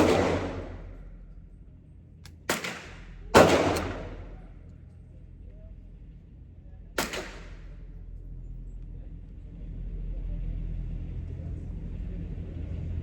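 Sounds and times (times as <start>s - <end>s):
gunshot: 0.0s - 0.9s, 2.5s - 4.4s, 7.0s - 7.6s
steady low rumble: 0.0s - 13.0s.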